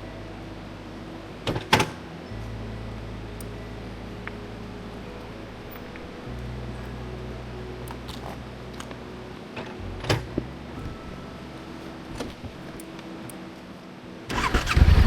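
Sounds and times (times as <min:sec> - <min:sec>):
motorcycle starter cranking: 0:14.3 - 0:15.0
motorcycle engine running: 0:14.4 - 0:15.0.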